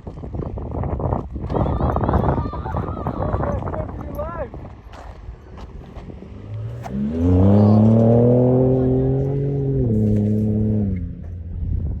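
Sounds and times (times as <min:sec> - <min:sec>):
truck engine revving: 0:06.0 - 0:11.2.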